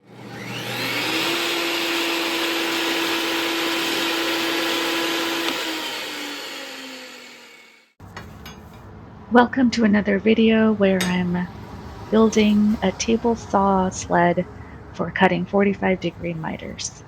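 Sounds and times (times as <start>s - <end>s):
electric power tool motor whine: 0.0s - 8.0s.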